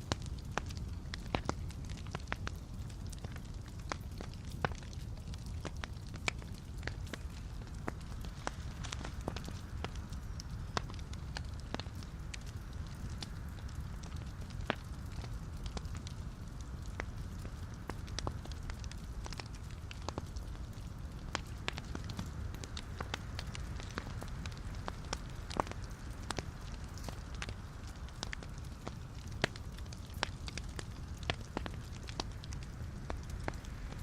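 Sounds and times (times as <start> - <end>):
fire rumbling: 0.0 - 34.0
wood crackling and popping: 0.0 - 34.0.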